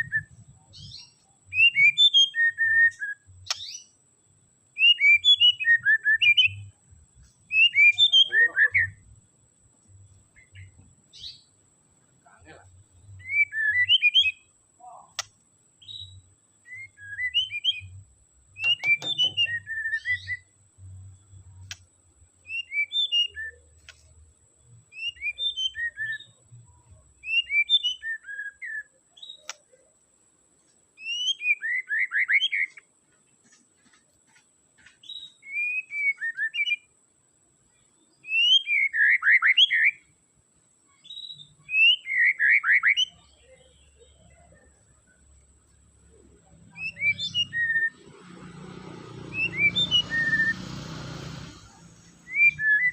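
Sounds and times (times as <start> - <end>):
songbird whistling: 0.0 - 4.0, 4.8 - 6.8, 7.5 - 9.0, 13.1 - 14.5, 15.2 - 20.5, 22.4 - 24.0, 24.9 - 26.4, 27.2 - 29.6, 31.0 - 32.8, 35.0 - 36.9, 38.2 - 40.1, 41.0 - 44.5, 46.7 - 48.2, 49.2 - 50.9, 51.5 - 52.9
bird rapid trills: 18.6 - 20.4, 46.8 - 52.9.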